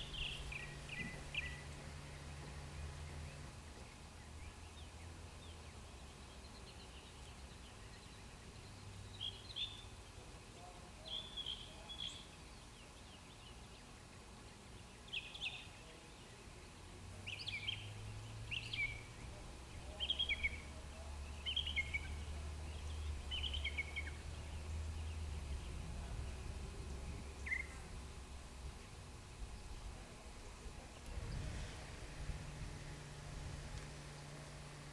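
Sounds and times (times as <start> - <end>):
bird chirping: 0.0 - 9.9, 14.8 - 27.9
steady low rumble: 22.1 - 34.9.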